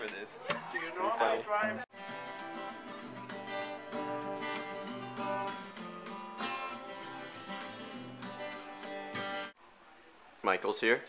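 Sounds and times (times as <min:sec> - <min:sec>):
strummed acoustic guitar: 0:01.4 - 0:09.6.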